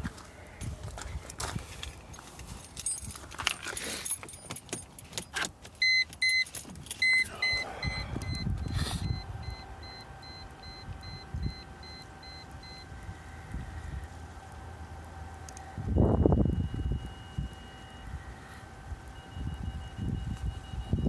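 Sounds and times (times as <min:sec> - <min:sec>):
faint steady hum: 0:00.0 - 0:21.0
car keys jangling: 0:00.6 - 0:09.0
car warning chime beeping: 0:05.6 - 0:14.0, 0:15.1 - 0:21.0
loud beeps: 0:05.8 - 0:12.9, 0:16.0 - 0:18.4, 0:19.2 - 0:21.0.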